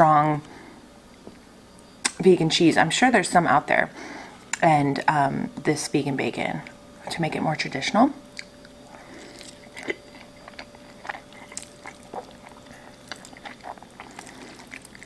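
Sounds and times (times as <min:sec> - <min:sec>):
chewing pasta: 0:08.2 - 0:15.0.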